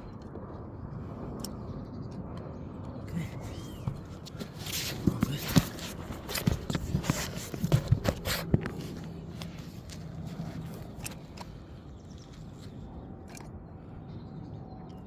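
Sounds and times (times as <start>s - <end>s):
knocks clicks and scuffs: 3.8s - 11.6s.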